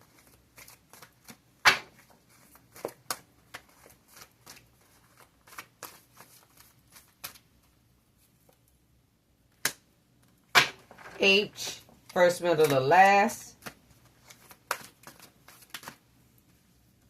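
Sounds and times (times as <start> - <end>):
cards being shuffled: 0.0 - 8.7, 11.6 - 16.6.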